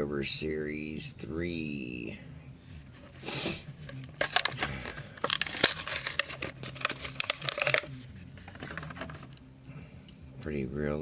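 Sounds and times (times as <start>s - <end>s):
plastic packaging crinkling: 4.2s - 9.3s.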